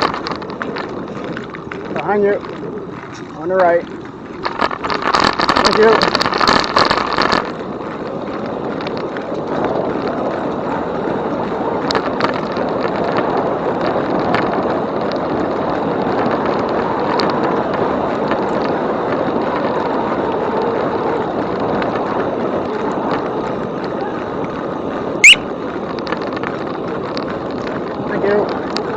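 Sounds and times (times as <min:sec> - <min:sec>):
tyres rolling on trail: 0:00.0 - 0:28.9
wind on microphone: 0:00.0 - 0:28.9.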